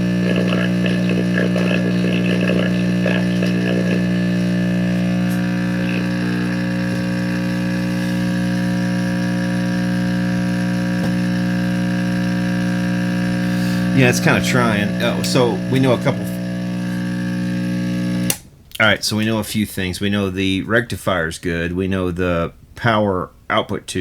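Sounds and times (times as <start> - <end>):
loud mains hum from radio: 0.0 - 18.4
radio click: 0.0 - 19.0
garbled radio station: 0.0 - 22.4.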